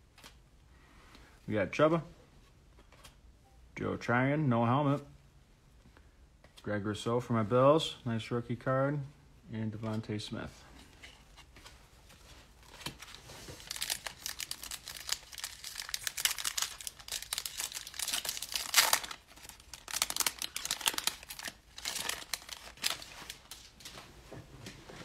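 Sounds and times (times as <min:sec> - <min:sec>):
cellophane wrapper crinkling: 0:12.6 - 0:24.0.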